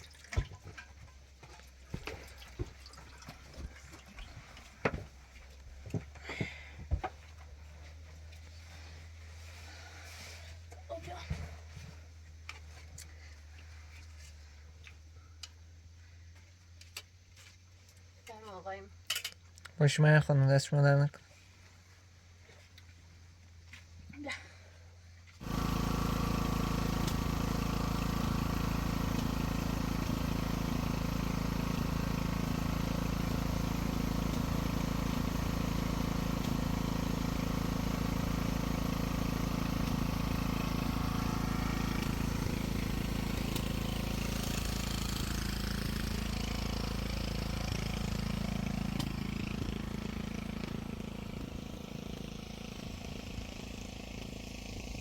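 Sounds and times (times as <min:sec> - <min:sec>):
engine running steadily: 0:23.7 - 0:55.0.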